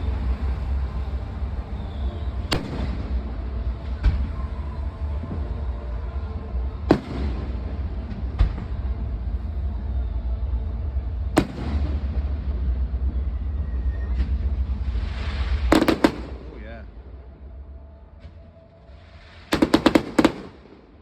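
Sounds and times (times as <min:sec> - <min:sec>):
steady low rumble: 0:00.0 - 0:21.0
firework shells bursting: 0:14.2 - 0:16.7, 0:19.3 - 0:21.0.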